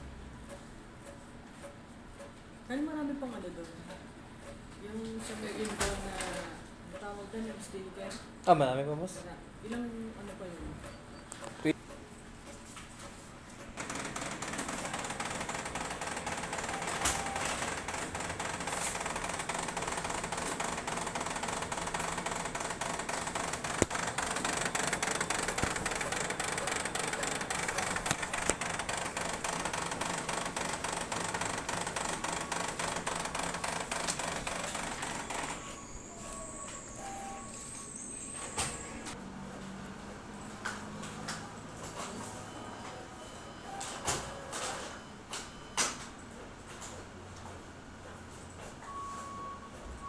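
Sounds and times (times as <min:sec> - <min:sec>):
copier crackling clatter: 0:12.6 - 0:35.8.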